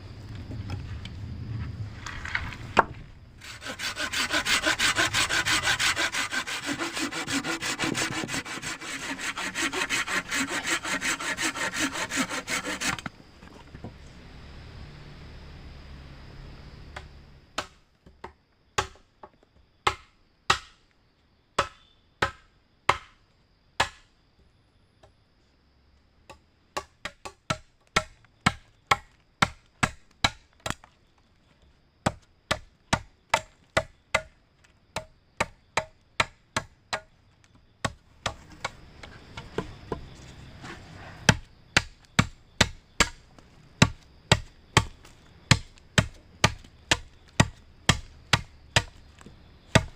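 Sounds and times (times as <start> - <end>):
blade chopping wood: 21.6 - 23.2, 41.2 - 43.2, 43.8 - 49.9.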